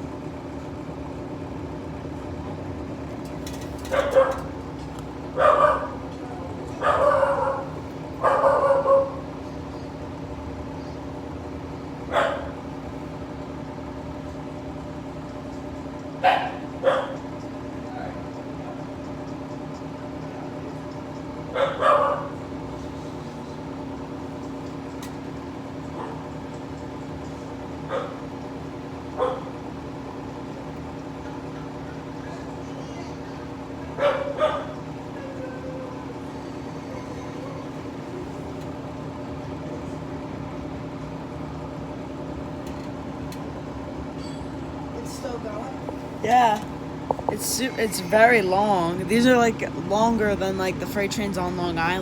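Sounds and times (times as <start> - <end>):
dog barking: 3.9 - 4.5, 5.4 - 6.0, 6.8 - 9.2, 12.1 - 12.6, 16.2 - 17.2, 21.5 - 22.4, 26.0 - 26.3, 27.9 - 28.2, 29.2 - 29.6, 34.0 - 34.8.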